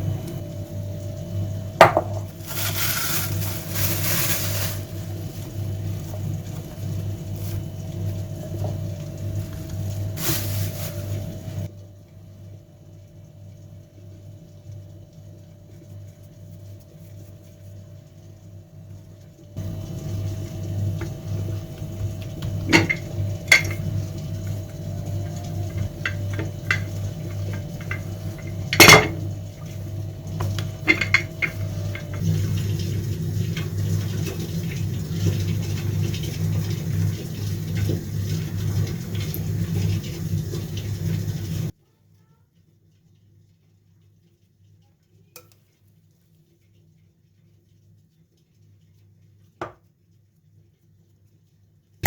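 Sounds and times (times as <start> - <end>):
utensils clinking against pots: 22.4 - 24.0, 25.1 - 29.3, 30.4 - 32.2.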